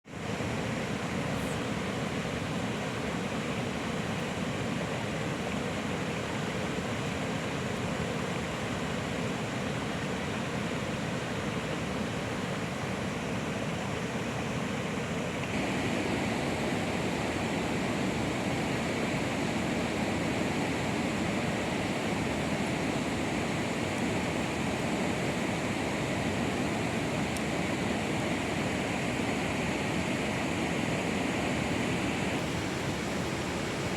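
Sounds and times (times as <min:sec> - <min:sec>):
steady rain hiss: 0:00.1 - 0:33.9.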